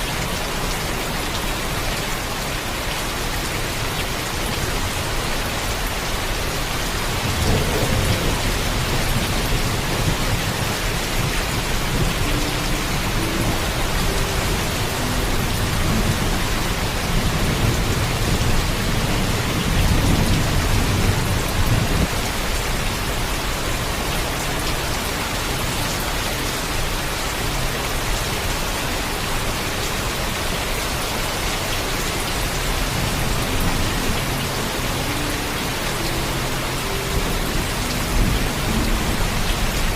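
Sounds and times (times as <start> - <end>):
heavy rain: 0.0 - 39.9
thunder rumbling: 6.4 - 23.2.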